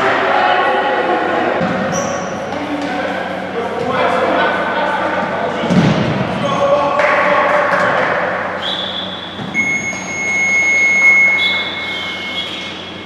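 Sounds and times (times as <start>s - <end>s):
hall noise: 0.0s - 13.0s
whistle blasts: 8.6s - 13.0s
electronic buzzer tone: 9.5s - 12.9s.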